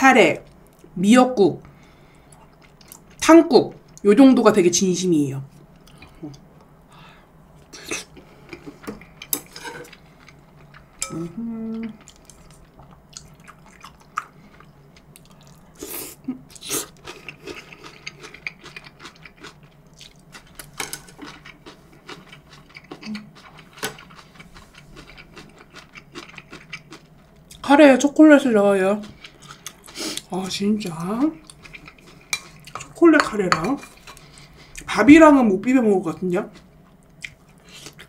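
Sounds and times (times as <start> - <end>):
chewing and mouth smacks: 2.3 - 3.2, 11.9 - 15.8, 16.5 - 27.6, 31.4 - 32.9, 36.6 - 38.0
person humming: 11.0 - 12.0.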